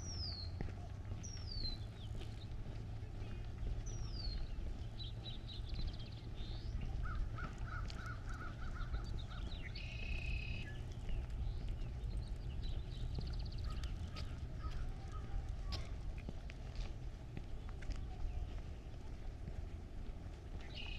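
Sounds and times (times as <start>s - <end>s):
steady low rumble: 0.0s - 20.9s
birds chirping and calling: 1.2s - 15.9s, 20.6s - 20.9s.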